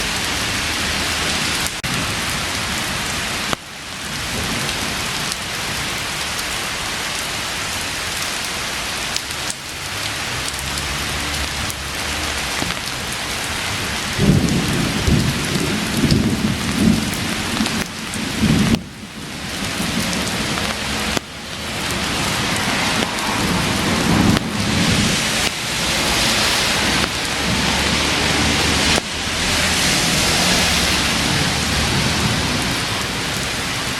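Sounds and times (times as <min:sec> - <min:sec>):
heavy rain pouring: 0:00.0 - 0:33.9
thunder rumbling: 0:12.6 - 0:33.9.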